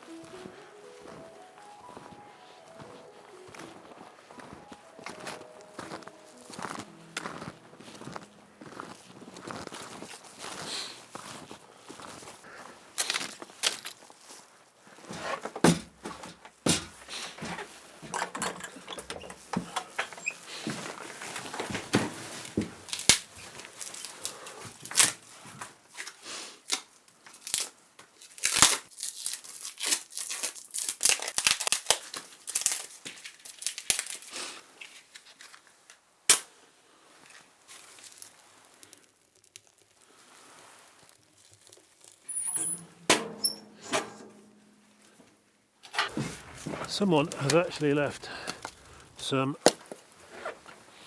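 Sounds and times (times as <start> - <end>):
wood knocking: 15.6 - 20.2
kindling tearing and crumpling: 22.9 - 25.2, 27.4 - 35.6, 37.3 - 42.3, 46.1 - 50.7.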